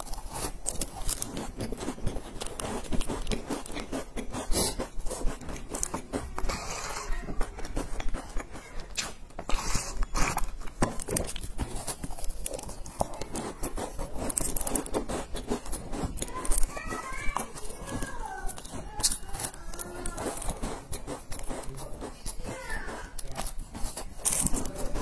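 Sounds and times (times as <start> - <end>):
crunching cookies: 0.0 - 25.0.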